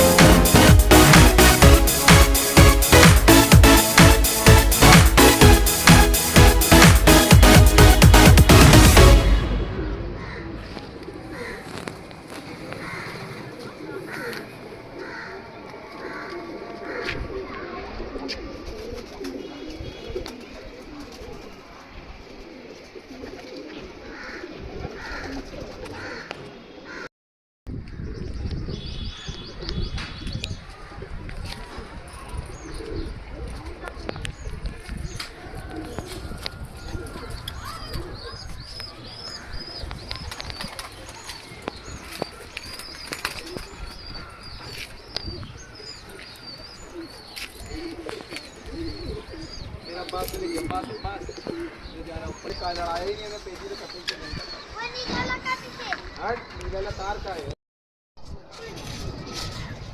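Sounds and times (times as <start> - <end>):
pigeons cooing: 11.0 - 27.0, 35.4 - 51.9
wings flapping: 40.0 - 43.9.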